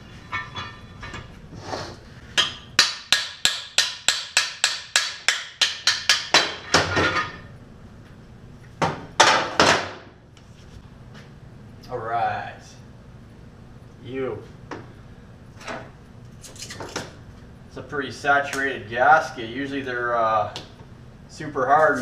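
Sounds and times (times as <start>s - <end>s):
hammer striking metal: 2.3s - 7.4s.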